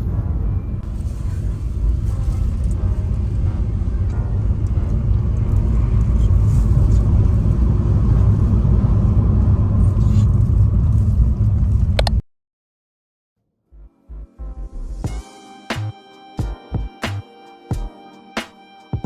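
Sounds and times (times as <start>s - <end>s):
vehicle rumbling in motion: 0.0s - 12.2s.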